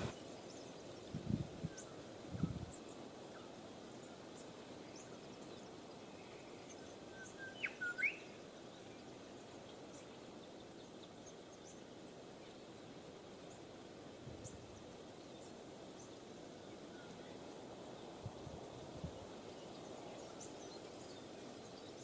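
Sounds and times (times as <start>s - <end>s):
bird call with whistled sweeps: 0.0s - 0.2s, 6.7s - 8.3s
outdoor background hiss: 0.0s - 22.0s.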